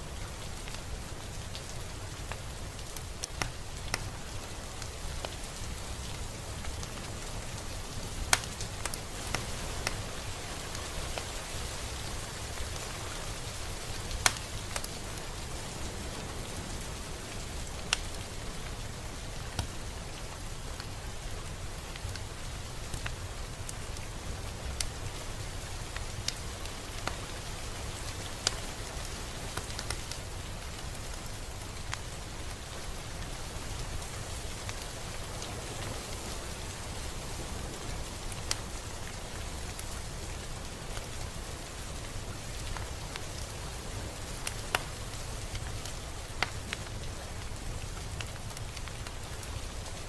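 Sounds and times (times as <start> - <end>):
steady rain hiss: 0.0 - 50.0.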